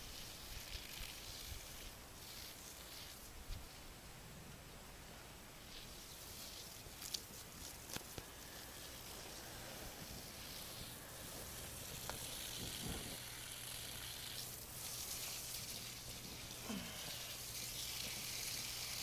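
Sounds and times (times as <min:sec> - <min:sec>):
fire hissing: 0:08.1 - 0:19.0.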